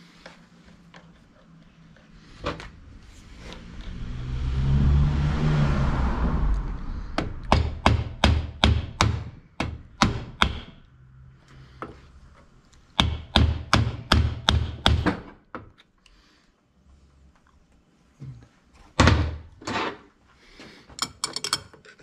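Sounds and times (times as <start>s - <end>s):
low rumble: 2.1s - 12.3s
sharp hammer blows: 6.4s - 10.8s.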